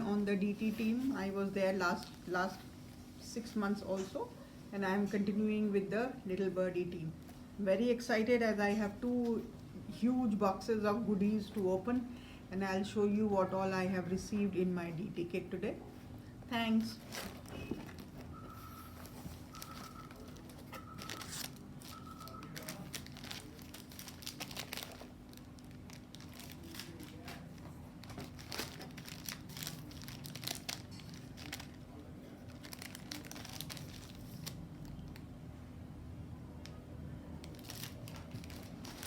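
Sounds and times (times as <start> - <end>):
faint steady hum: 0.0 - 39.0
packaging crinkling and rustling: 16.7 - 35.3, 37.4 - 39.0
wrapping tearing: 16.9 - 35.3, 37.4 - 39.0
short beeps: 18.3 - 22.6.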